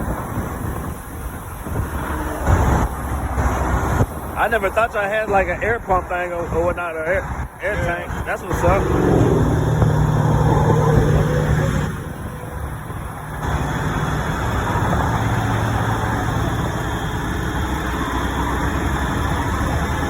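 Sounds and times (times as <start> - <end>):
motor humming: 8.4 - 15.8.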